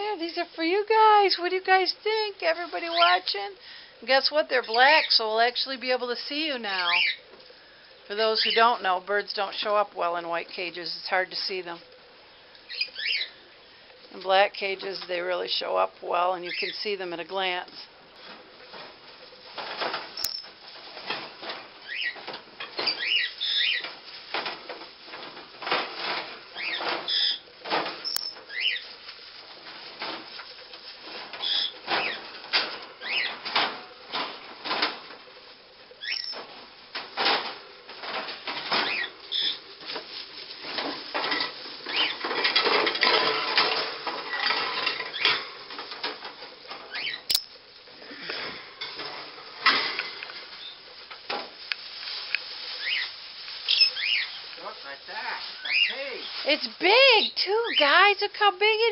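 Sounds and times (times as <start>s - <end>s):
rustling: 11.4s - 58.9s
parrot chirps: 36.0s - 36.4s, 52.8s - 53.1s, 53.7s - 54.4s
wire cage parts clanking: 40.6s - 47.6s.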